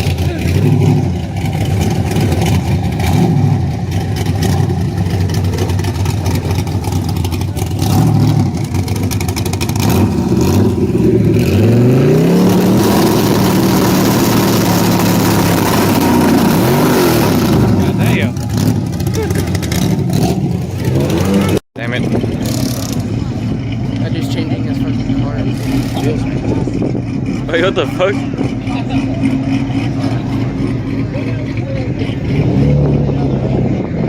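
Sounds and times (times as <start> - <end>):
car engine running and revving: 0.0 - 34.0.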